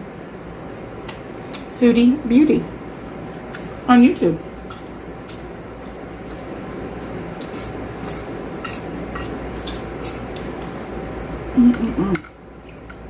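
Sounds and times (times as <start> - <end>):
low background hum: 0.0 - 13.0
cutlery clinking against a plate: 7.4 - 10.5.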